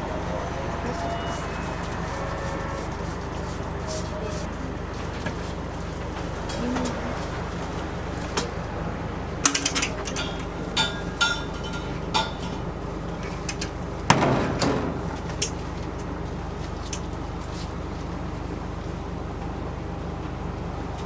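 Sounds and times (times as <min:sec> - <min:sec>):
steady low hum: 0:00.0 - 0:21.0
kitchen utensils clinking: 0:09.5 - 0:12.6.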